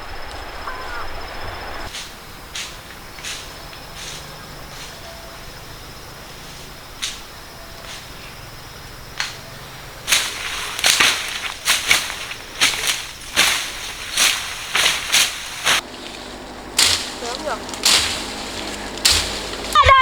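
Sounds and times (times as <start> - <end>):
short scraping strokes: 10.1 - 20.0.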